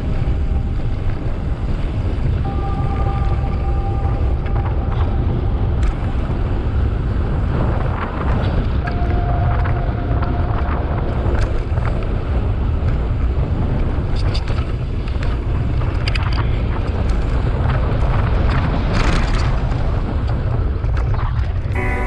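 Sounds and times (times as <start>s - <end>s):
wind buffeting microphone: 0.0s - 22.0s
bike clicks and rattles: 11.3s - 21.6s.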